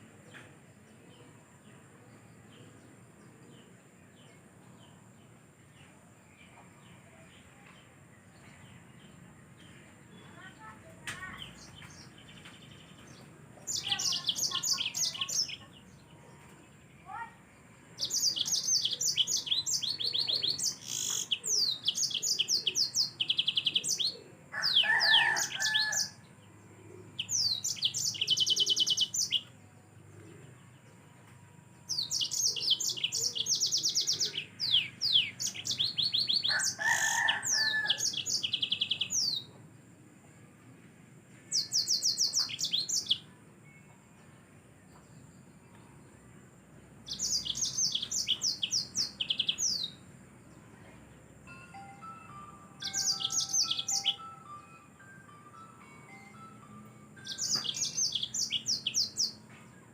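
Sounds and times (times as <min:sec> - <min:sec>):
canary singing high trills: 0:18.0 - 0:26.2, 0:51.7 - 0:59.4.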